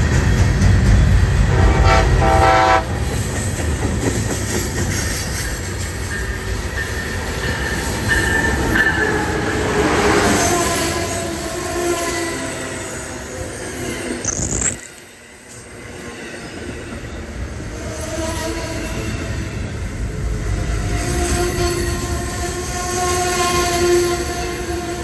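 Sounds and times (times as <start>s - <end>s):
train rumbling past: 0.0s - 25.0s
train horn: 1.4s - 3.0s.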